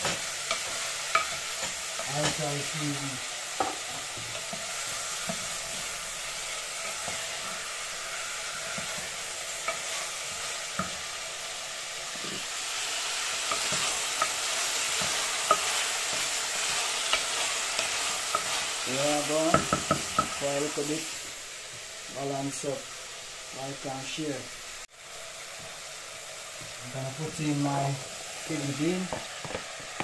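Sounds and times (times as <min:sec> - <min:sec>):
vegetables sizzling in hot oil: 0:00.0 - 0:30.0.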